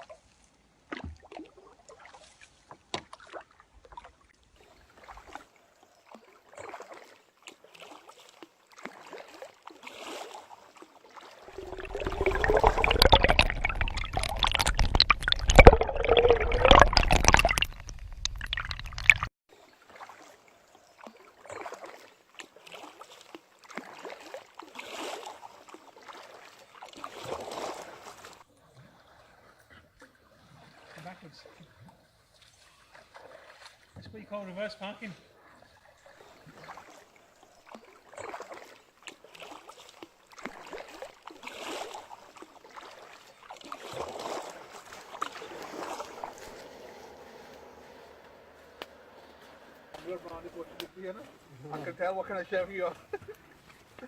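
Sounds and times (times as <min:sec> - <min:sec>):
faint splashes: 0:00.0 - 0:54.0
water gurgling around kayak: 0:00.9 - 0:34.1, 0:35.2 - 0:51.7
deep rumbling and sloshing: 0:11.4 - 0:19.3, 0:44.0 - 0:51.6.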